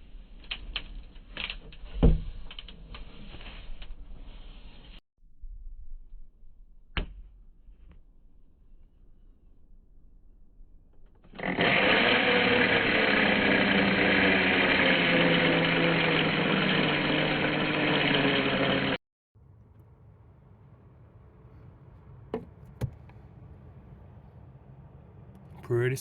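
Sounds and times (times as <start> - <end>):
motor running: 11.3 - 19.0.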